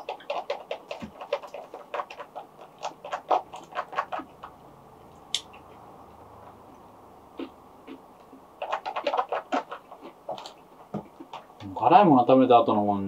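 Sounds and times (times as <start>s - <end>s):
chewing and crunching food: 0.0s - 4.6s, 7.4s - 11.6s.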